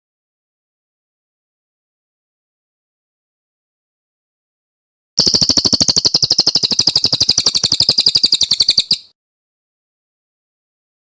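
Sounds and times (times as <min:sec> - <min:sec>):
songbird trilling: 0:05.2 - 0:09.1.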